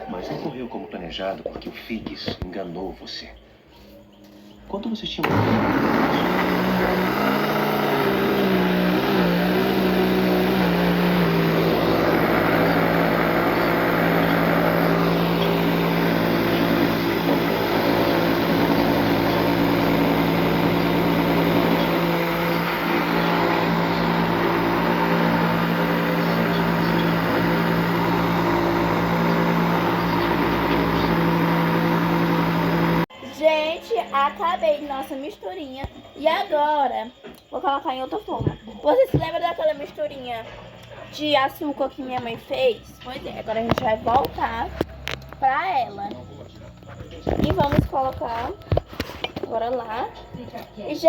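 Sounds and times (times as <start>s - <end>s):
electric blender motor: 5.2s - 33.1s.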